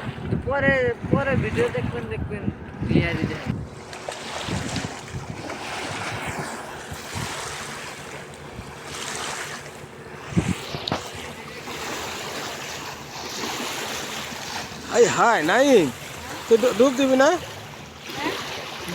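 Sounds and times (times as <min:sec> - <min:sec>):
water rushing: 0:00.0 - 0:18.9
wind buffeting microphone: 0:00.0 - 0:18.9.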